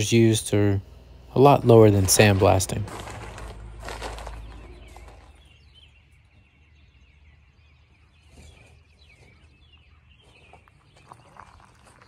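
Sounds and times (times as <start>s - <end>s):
low background rumble: 0.0s - 8.2s
small birds chirping faintly: 0.0s - 12.0s.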